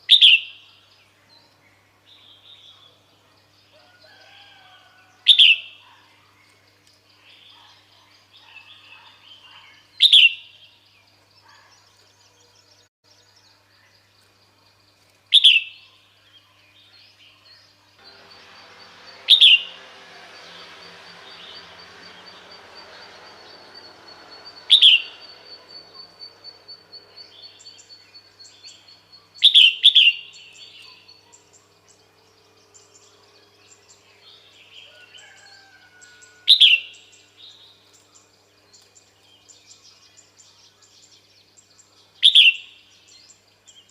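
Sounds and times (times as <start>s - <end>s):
faint high pulsing tone: 18.0s - 29.4s
bird sharp calls: 18.1s - 31.6s.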